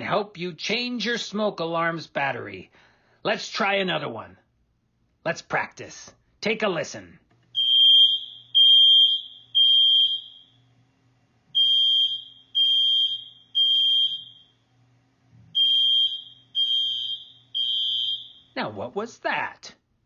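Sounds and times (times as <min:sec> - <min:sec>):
smoke alarm beeping: 0:07.5 - 0:10.6, 0:11.5 - 0:14.7, 0:15.5 - 0:18.6.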